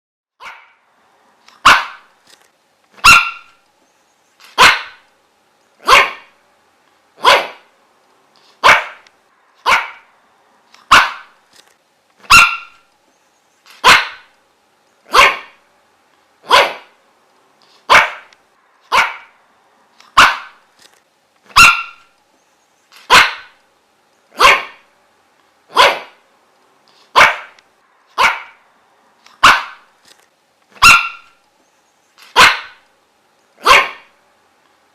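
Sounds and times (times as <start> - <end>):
dog barking: 0.4 - 0.8, 1.6 - 2.1, 3.0 - 3.6, 4.5 - 5.0, 5.8 - 6.4, 7.2 - 7.7, 8.6 - 9.0, 9.6 - 10.1, 10.9 - 11.4, 12.3 - 12.8, 13.8 - 14.3, 15.1 - 15.6, 16.4 - 17.0, 17.9 - 18.3, 18.9 - 19.4, 20.1 - 20.6, 21.5 - 22.1, 23.0 - 23.6, 24.3 - 24.9, 25.7 - 26.2, 27.1 - 27.6, 28.2 - 28.6, 29.4 - 29.9, 30.8 - 31.4, 32.3 - 32.8, 33.6 - 34.2.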